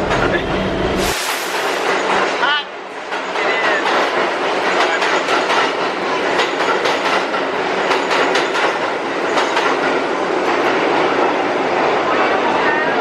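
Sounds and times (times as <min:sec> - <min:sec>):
subway train rumble: 0:00.0 - 0:13.0
wheels clattering over rails: 0:01.6 - 0:11.3.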